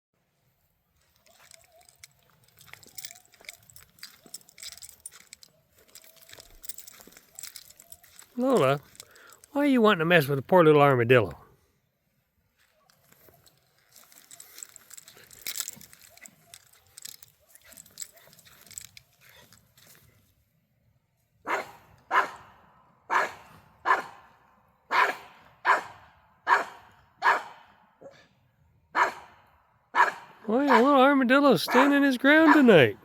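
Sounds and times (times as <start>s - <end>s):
faint rustling and scuffling: 0.6s - 9.6s, 12.4s - 20.5s
dog barking sharply: 21.5s - 24.3s, 24.9s - 27.7s, 29.0s - 30.9s, 31.7s - 32.8s.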